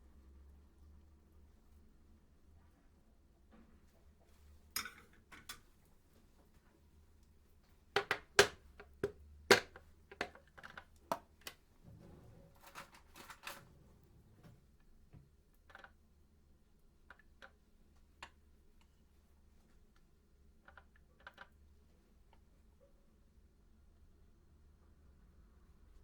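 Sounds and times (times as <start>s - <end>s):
sharp clicks and knocks: 8.0s - 11.6s.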